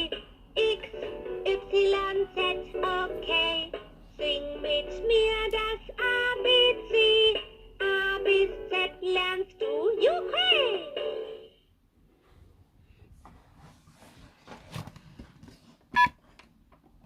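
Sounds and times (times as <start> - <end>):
toy playing synthesized singing: 0.0 - 11.5.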